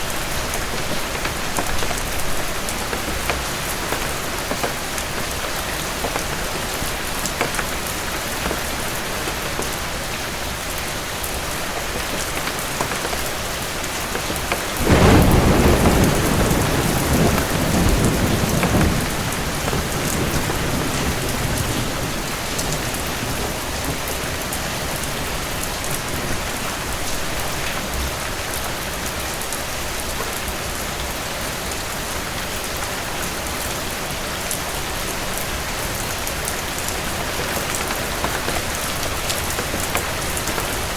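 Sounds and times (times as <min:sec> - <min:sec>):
steady rainfall: 0:00.0 - 0:40.9
thunder clap rumbling: 0:14.8 - 0:28.6.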